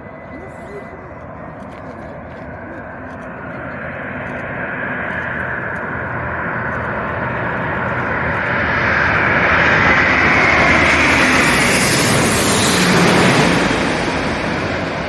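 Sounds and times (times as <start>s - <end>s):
jet airliner engine noise: 0.0s - 15.0s.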